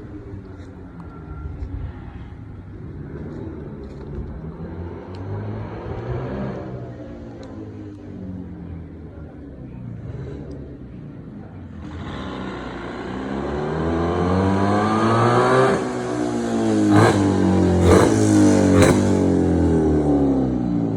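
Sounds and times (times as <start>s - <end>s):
motorcycle engine revving: 10.0s - 20.9s.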